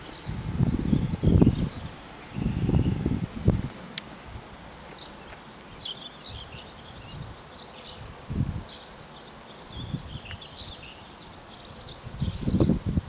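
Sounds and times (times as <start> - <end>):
wind buffeting microphone: 0.0 - 8.8, 9.6 - 13.0
small birds chirping: 0.0 - 13.0.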